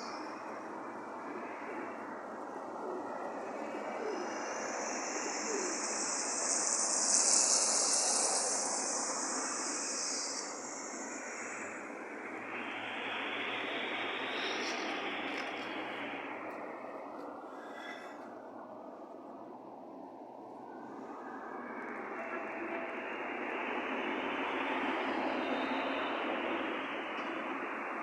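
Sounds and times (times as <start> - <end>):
outdoor rushing noise: 0.0 - 28.0
high hiss: 2.9 - 18.2.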